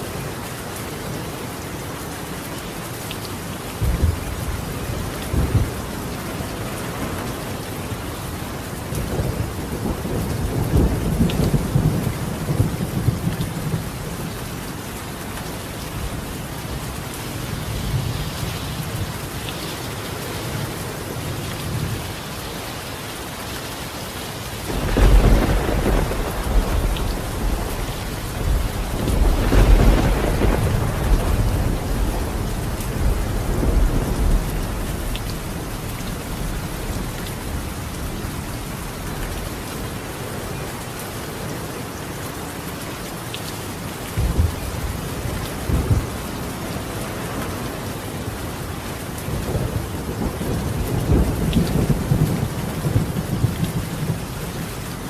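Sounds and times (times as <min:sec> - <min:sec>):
rain on a tiled roof: 0:00.0 - 0:55.0
rolling thunder: 0:09.0 - 0:14.2, 0:24.7 - 0:39.2.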